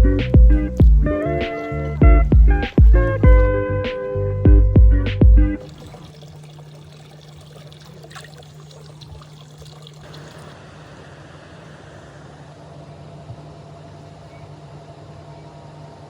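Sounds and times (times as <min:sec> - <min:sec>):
steady low hum: 0:00.0 - 0:16.0
water pouring and running: 0:05.6 - 0:10.9.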